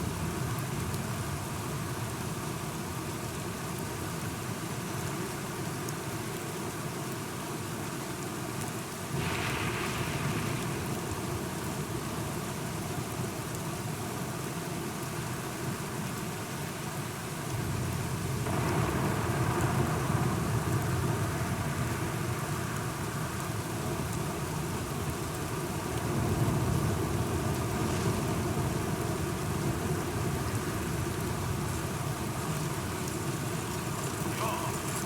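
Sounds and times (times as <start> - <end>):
steady rain falling: 0.0 - 35.0
low rolling thunder: 9.2 - 12.3.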